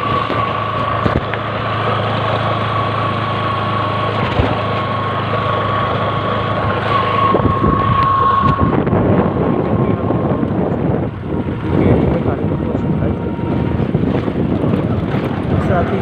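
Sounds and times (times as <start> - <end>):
high whine: 0.0 - 16.0
motorcycle engine running: 0.0 - 16.0.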